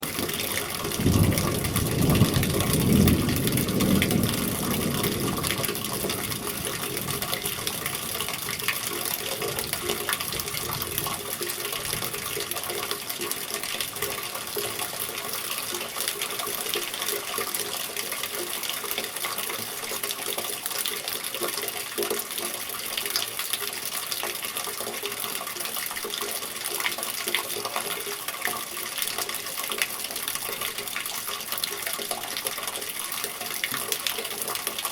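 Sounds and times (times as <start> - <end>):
steady rain: 0.0 - 34.9
water running from gutter: 0.0 - 34.9
thunder rumbling: 0.1 - 12.4.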